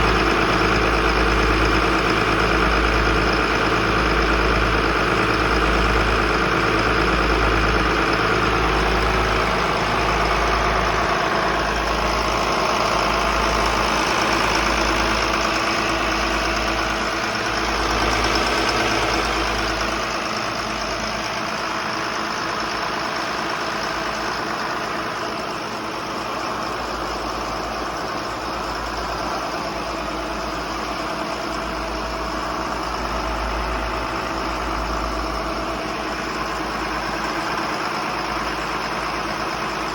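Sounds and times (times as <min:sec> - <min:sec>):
boat engines droning: 0:00.0 - 0:39.9.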